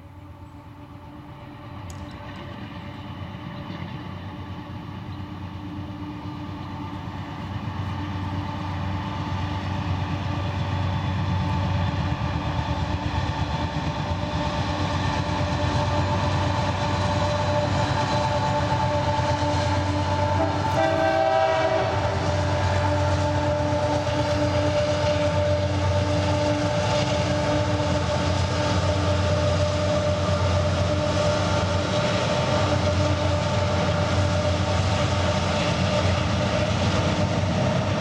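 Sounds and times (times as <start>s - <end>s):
diesel locomotive engine rumble: 0.0s - 38.0s.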